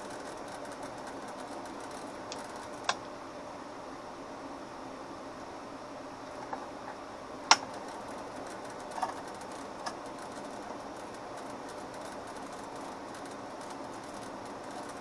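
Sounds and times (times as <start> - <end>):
relays clicking: 0.0 - 3.0, 7.5 - 15.0
steady background hiss: 0.0 - 15.0.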